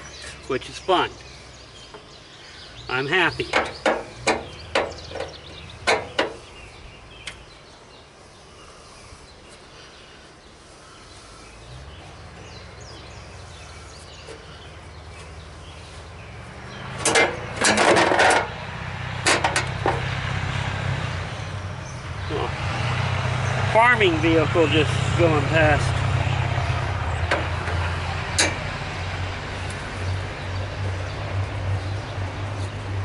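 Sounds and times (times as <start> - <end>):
passing vehicle engine hum: 10.6 - 33.0.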